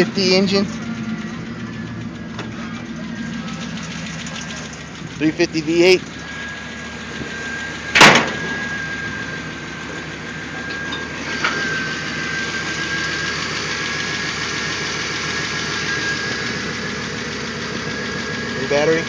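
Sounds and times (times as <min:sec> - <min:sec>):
thin steady whine: 0:00.0 - 0:19.0
truck engine idling: 0:00.0 - 0:19.0
loud sharp thump: 0:08.0 - 0:08.5.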